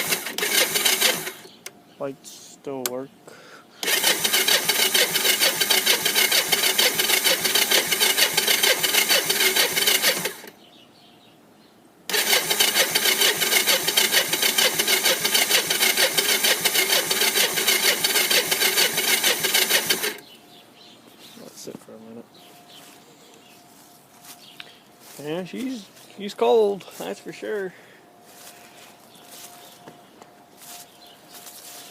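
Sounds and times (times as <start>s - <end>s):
engine cranking on starter: 0.0s - 1.6s, 3.8s - 10.5s, 12.1s - 20.3s.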